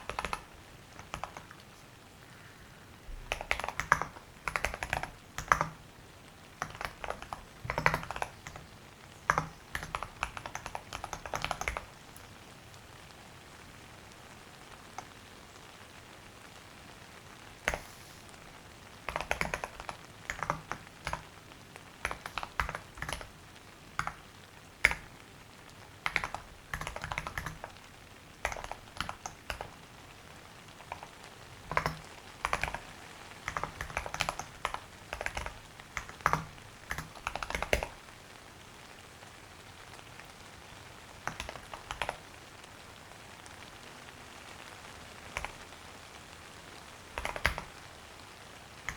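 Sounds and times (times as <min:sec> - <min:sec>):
computer keyboard typing: 0:00.0 - 0:01.6, 0:03.3 - 0:05.8, 0:06.6 - 0:12.3, 0:17.6 - 0:17.9, 0:19.1 - 0:21.4, 0:22.0 - 0:23.4, 0:24.0 - 0:24.2, 0:24.8 - 0:25.1, 0:26.0 - 0:27.8, 0:28.4 - 0:29.8, 0:30.7 - 0:38.0, 0:41.2 - 0:42.3, 0:45.3 - 0:45.6, 0:47.2 - 0:47.7.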